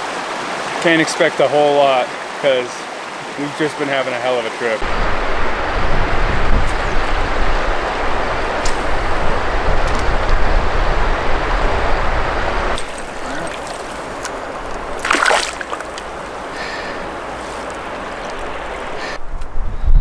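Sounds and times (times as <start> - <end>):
river water rushing: 0.0 - 19.2
water splash: 4.8 - 19.2.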